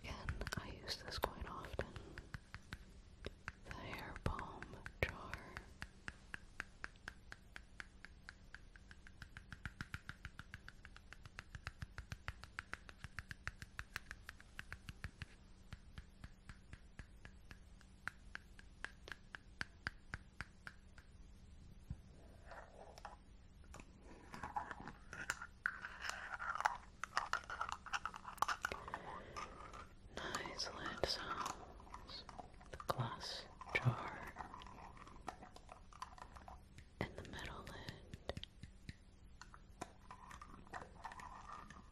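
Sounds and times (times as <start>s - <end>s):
scratchy rubbing on jar: 24.2s - 38.4s, 39.8s - 41.9s.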